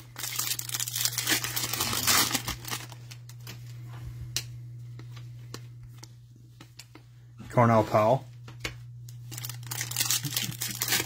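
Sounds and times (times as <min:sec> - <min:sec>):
foil wrapper crinkling and tearing: 0:00.0 - 0:03.5, 0:09.2 - 0:11.0
steady low hum: 0:00.0 - 0:11.0.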